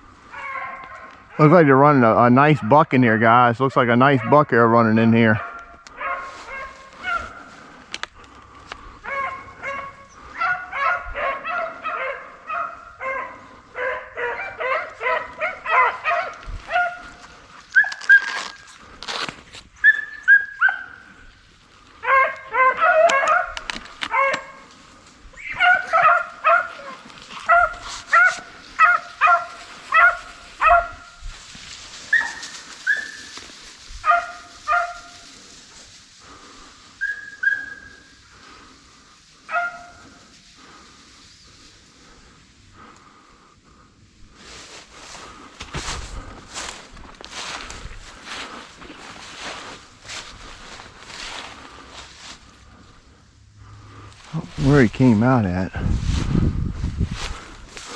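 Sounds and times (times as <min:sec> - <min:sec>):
hounds baying: 0:00.1 - 0:18.8, 0:19.7 - 0:43.4.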